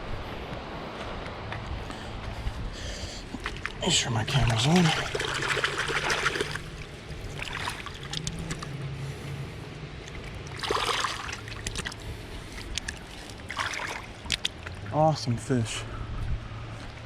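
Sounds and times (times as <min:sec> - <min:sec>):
steady low hum: 0:00.0 - 0:17.0
river water splashing: 0:02.0 - 0:15.4.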